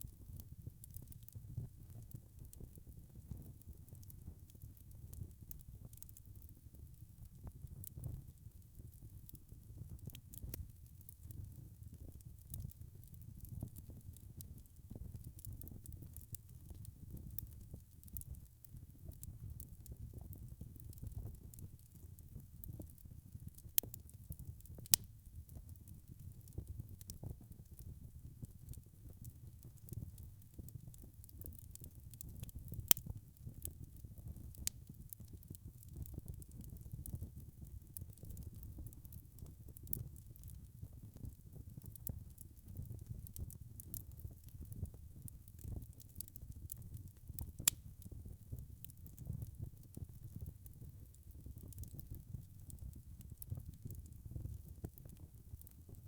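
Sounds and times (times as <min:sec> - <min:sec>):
log fire crackling: 0:00.0 - 0:56.0.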